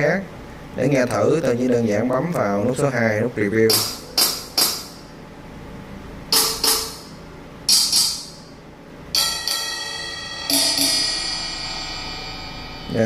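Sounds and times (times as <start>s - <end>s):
short bright hi-hat hits: 6.3s - 8.6s
ringing metallic bell-like hit: 9.1s - 13.0s.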